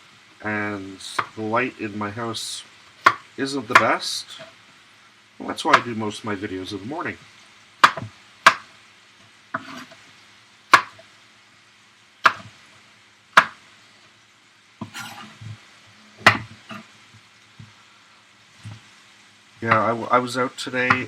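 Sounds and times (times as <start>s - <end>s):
chicken sizzling in frying pan: 0.0s - 21.0s
knife chopping on cutting board: 3.1s - 4.0s, 7.8s - 8.7s, 9.6s - 9.9s, 10.7s - 11.0s, 12.2s - 12.5s, 13.4s - 13.6s, 16.3s - 16.8s.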